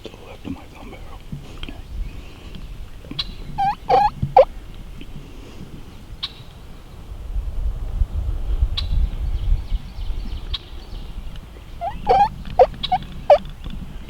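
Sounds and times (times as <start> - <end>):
turkey gobbling: 3.6 - 4.5, 11.8 - 13.4.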